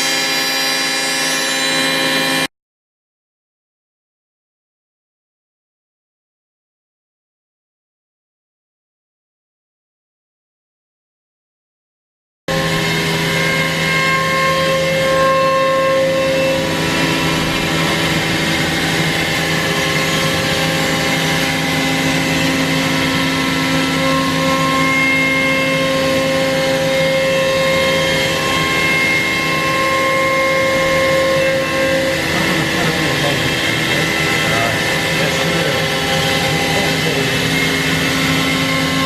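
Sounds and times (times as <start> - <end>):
cnc router spindle whine: 0.0 - 2.5, 12.5 - 39.0
router cutting wood: 0.0 - 2.5, 12.5 - 39.0.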